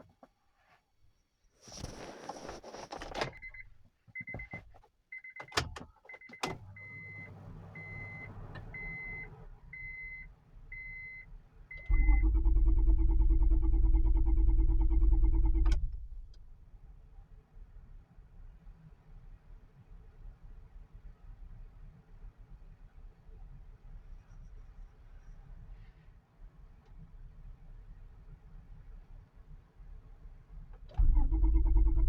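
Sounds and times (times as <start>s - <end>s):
car warning chime beeping: 5.2s - 15.9s
car starter cranking: 11.8s - 16.5s, 30.9s - 32.0s.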